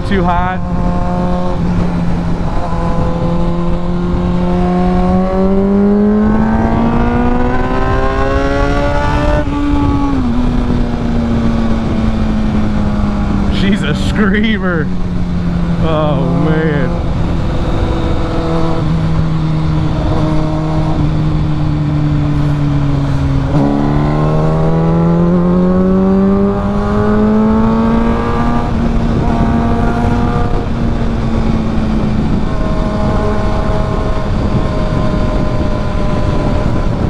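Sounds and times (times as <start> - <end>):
motorcycle engine accelerating: 0.0 - 37.0
wind rush: 0.0 - 37.0.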